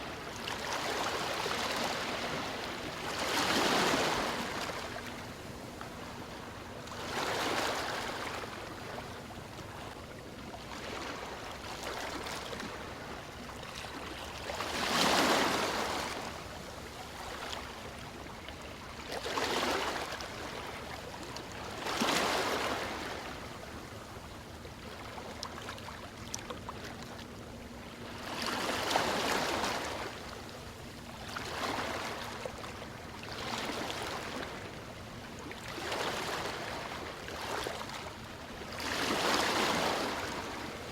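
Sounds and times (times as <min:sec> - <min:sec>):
ocean waves breaking on shore: 0:00.0 - 0:24.0, 0:27.8 - 0:40.9.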